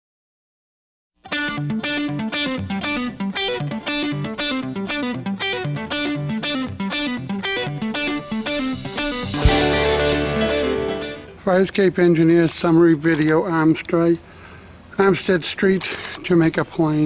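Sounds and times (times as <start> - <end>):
electric guitar music: 1.2 - 11.5
pulsing bass line: 8.1 - 11.4.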